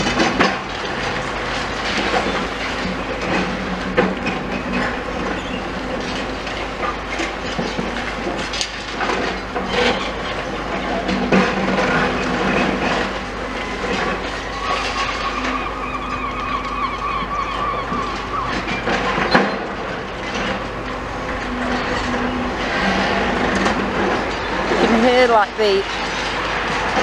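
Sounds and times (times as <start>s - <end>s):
structure creaking apart: 0.0s - 27.0s
high metal squeal: 9.6s - 26.5s.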